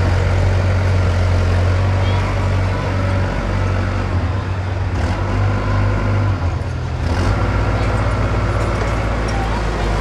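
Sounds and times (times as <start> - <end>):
diesel engine droning: 0.0 - 10.0.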